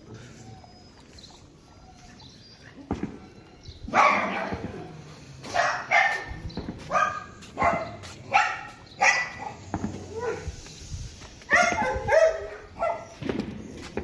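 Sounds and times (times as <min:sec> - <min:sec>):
dog barking: 0:03.9 - 0:04.7, 0:05.4 - 0:10.5, 0:11.5 - 0:13.2.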